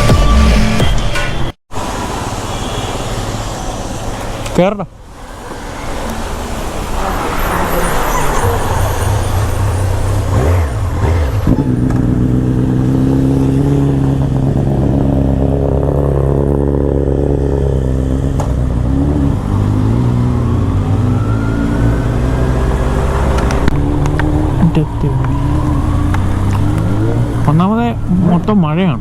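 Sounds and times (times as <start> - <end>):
motorcycle engine running: 9.6 - 19.6.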